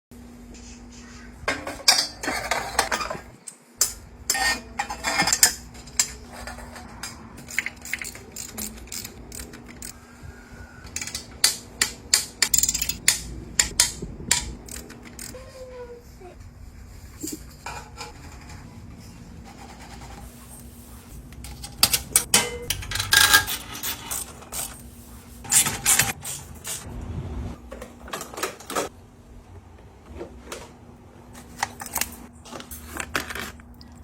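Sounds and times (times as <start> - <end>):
steady low hum: 0.2 - 31.4
metal tools clinking and clanking: 1.5 - 10.0, 21.4 - 24.9.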